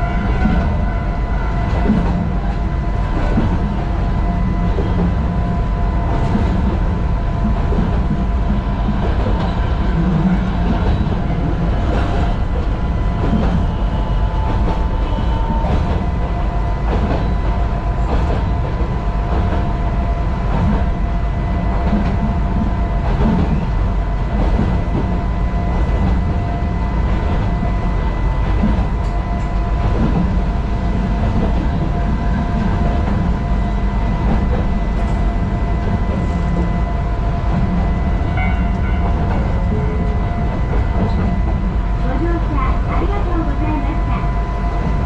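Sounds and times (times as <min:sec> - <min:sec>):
train rumbling: 0:00.0 - 0:45.0.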